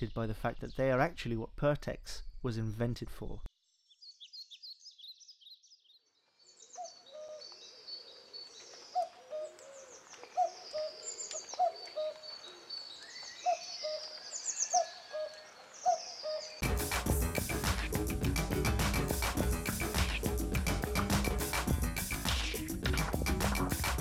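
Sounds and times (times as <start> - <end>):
high bird twittering: 8.9 - 16.6
loud music: 16.6 - 24.0.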